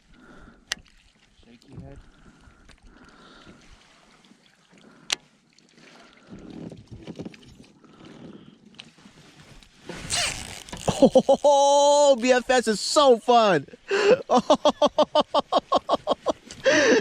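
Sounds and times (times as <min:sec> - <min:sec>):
handling noises: 0:10.0 - 0:11.5
short hiss: 0:10.0 - 0:11.5.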